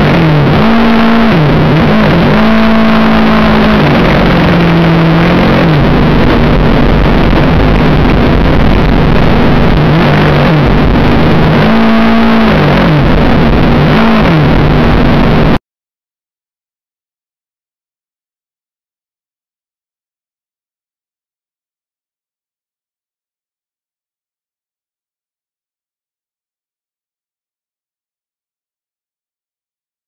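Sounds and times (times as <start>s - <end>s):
loud steady rushing noise: 0.0s - 15.6s
motorcycle engine revving: 0.0s - 15.6s.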